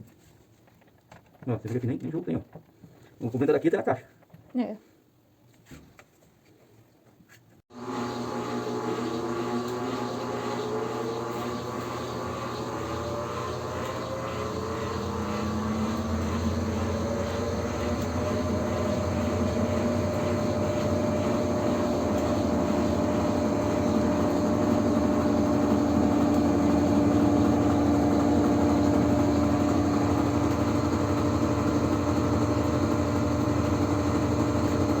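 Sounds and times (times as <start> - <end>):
washing machine spinning: 7.7 - 35.0.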